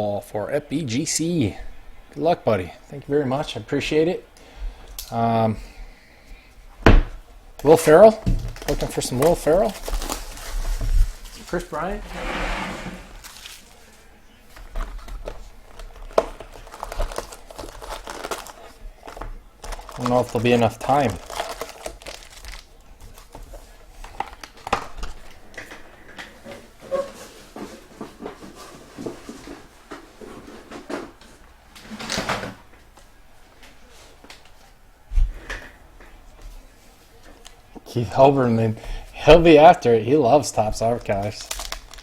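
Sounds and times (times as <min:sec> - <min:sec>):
wrapper rustling: 0:07.9 - 0:25.4, 0:40.6 - 0:42.0.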